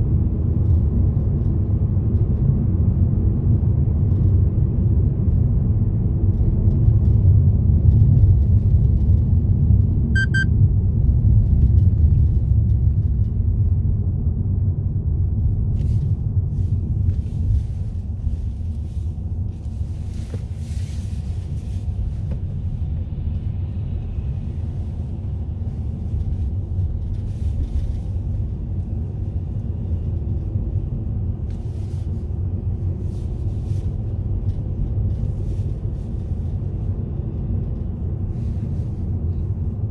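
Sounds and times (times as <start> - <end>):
car road and engine rumble: 0.0 - 39.9
high beep: 10.2 - 10.5.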